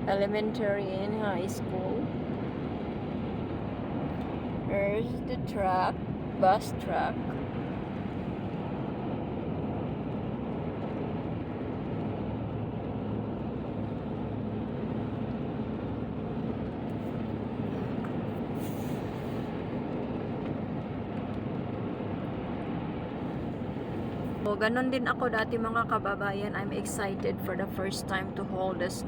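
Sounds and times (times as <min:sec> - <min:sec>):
car road and engine noise: 0:00.0 - 0:29.0
brief hiss: 0:18.6 - 0:19.5.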